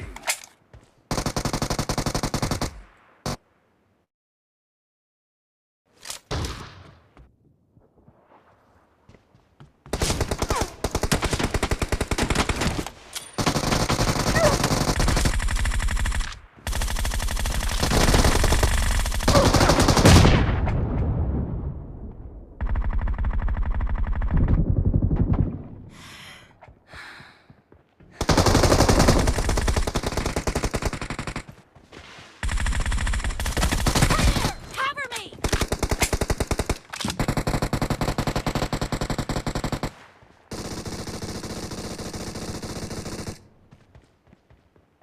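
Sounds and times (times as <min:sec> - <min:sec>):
video game automatic gunfire: 0:01.1 - 0:03.4, 0:09.9 - 0:12.8, 0:13.4 - 0:20.4, 0:22.6 - 0:25.4, 0:28.2 - 0:31.6, 0:32.4 - 0:43.5.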